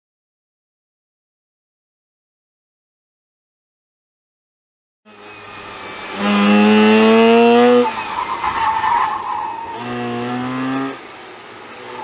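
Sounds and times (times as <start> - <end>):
car engine revving: 5.1 - 12.0.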